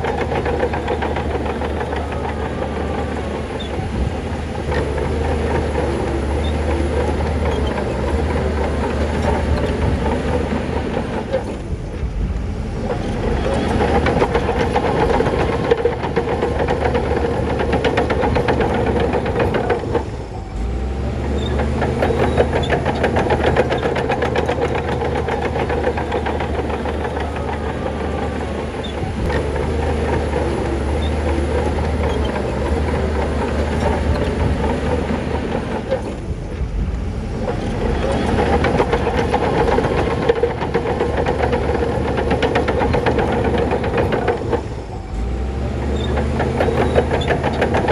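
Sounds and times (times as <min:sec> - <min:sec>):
diesel engine running: 0:00.0 - 0:47.9
steel tracks clanking: 0:00.0 - 0:47.9.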